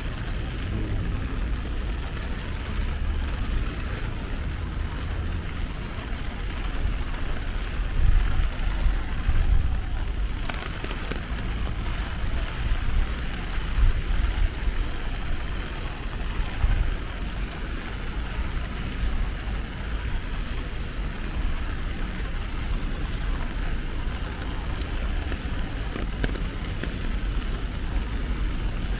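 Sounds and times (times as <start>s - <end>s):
low uneven rumble: 0.0s - 28.9s
steady rain hiss: 0.0s - 28.9s.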